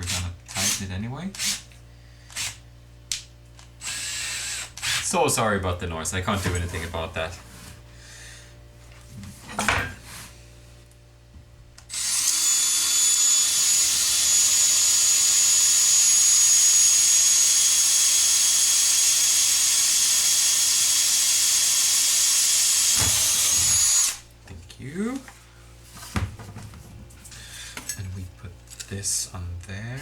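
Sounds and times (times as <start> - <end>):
power tool high-pitched whine: 11.9 - 24.2.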